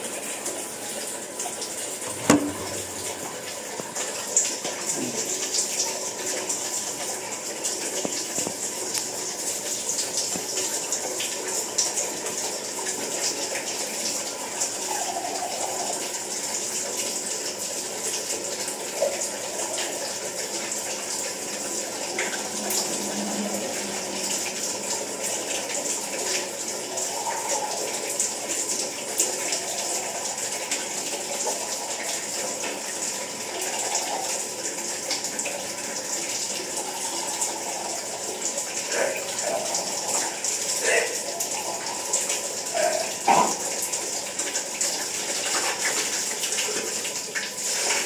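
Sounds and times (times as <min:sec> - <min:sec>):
water running from tap: 0:00.0 - 0:48.0.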